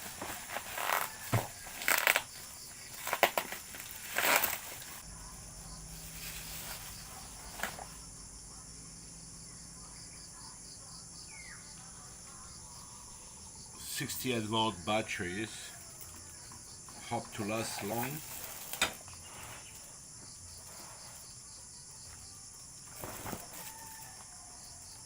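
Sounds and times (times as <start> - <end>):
packaging crinkling: 0.0 - 5.0
insects chirring: 0.0 - 25.0.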